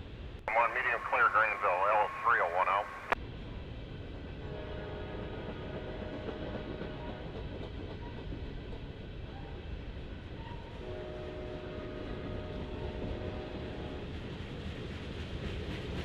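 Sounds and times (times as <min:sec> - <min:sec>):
freight train rumbling on rails: 0:00.0 - 0:16.0
faint steady tones: 0:00.4 - 0:03.2.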